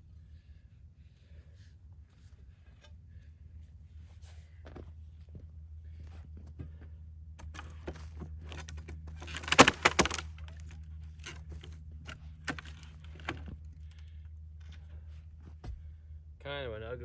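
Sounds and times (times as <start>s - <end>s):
wood cracking and snapping: 8.5s - 11.7s, 12.4s - 13.5s.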